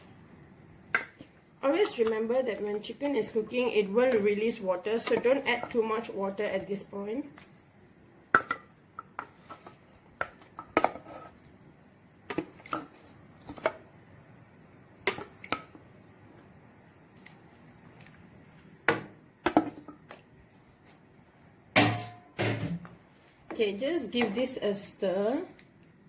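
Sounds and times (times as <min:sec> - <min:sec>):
spoon knocking and scraping pot: 0:05.0 - 0:05.9.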